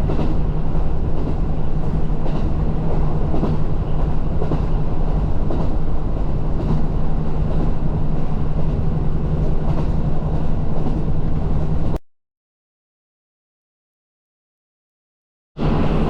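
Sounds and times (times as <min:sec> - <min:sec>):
diesel train running: 0:00.0 - 0:12.0, 0:15.6 - 0:16.0.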